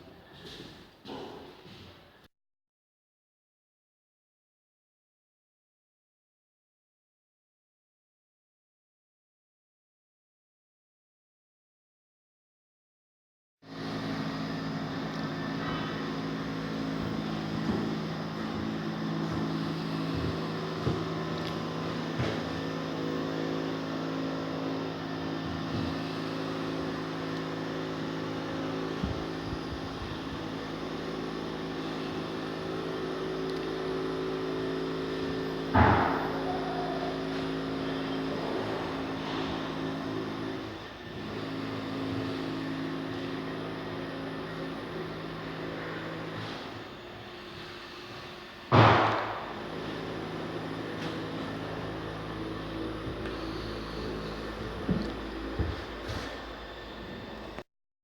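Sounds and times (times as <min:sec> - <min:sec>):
engine humming: 0:14.8 - 0:40.0, 0:49.3 - 0:57.6
loud bang: 0:48.7 - 0:49.5.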